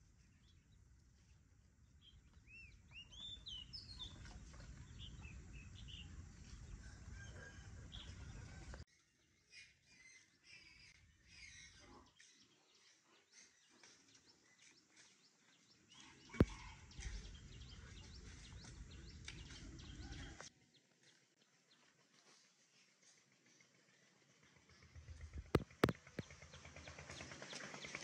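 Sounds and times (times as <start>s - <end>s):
birds chirping: 2.0s - 8.8s, 9.4s - 20.4s.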